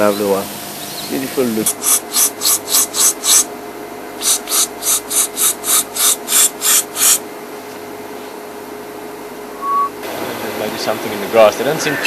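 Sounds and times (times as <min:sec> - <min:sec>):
animal harsh rasping call: 0:04.2 - 0:07.2.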